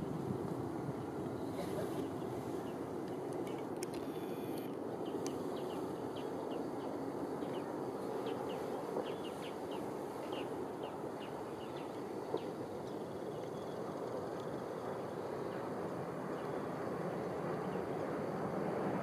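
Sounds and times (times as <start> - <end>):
low outdoor rumble: 0.0 - 19.0
small birds chirping: 1.4 - 15.7.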